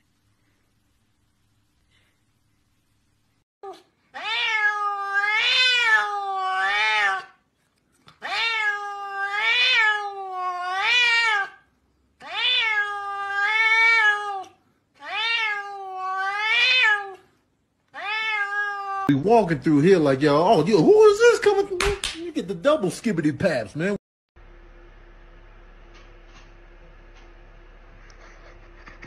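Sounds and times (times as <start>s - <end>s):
cat meowing: 3.6s - 7.4s, 8.2s - 11.6s, 12.2s - 17.2s, 17.9s - 19.1s.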